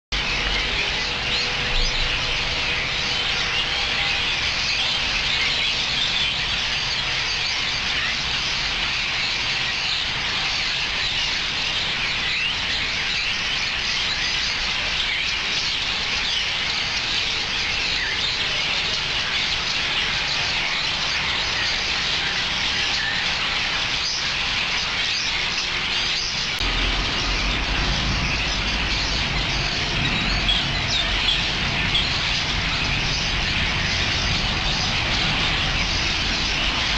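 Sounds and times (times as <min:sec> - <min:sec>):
flock of birds chirping: 0:00.1 - 0:36.9
low rumble: 0:26.6 - 0:36.9.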